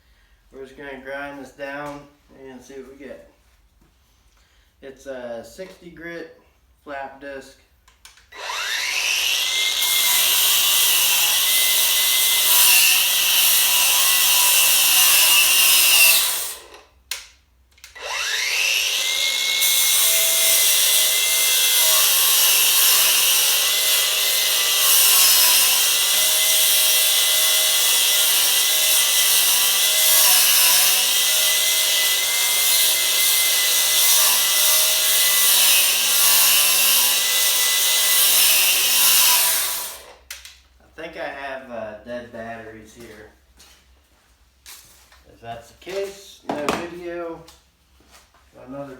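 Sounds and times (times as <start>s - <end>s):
angle grinder grinding paint: 8.4s - 16.8s, 18.0s - 40.2s.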